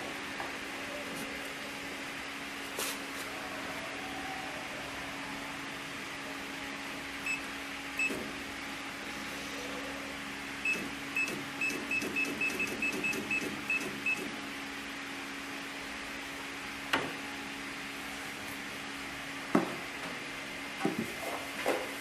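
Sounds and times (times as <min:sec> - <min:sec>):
steady electrical hum: 0:00.0 - 0:22.0
sewing machine panel beeps: 0:10.7 - 0:14.3.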